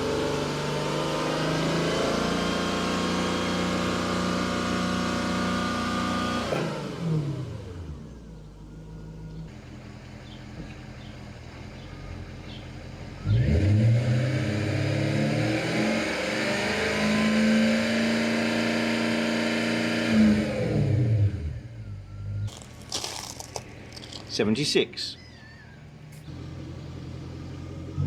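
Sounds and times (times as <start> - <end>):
car engine idling and revving: 0.0 - 24.6, 25.4 - 28.0.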